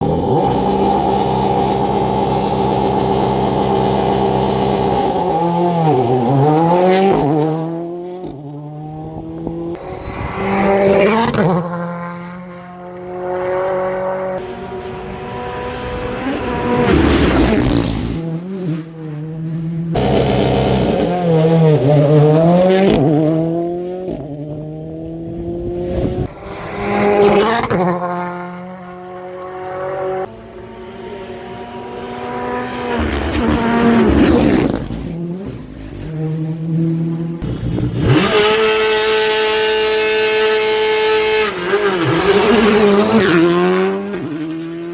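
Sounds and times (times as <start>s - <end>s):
rally car engines revving: 0.0s - 44.9s
loud rushing burst: 9.8s - 12.4s.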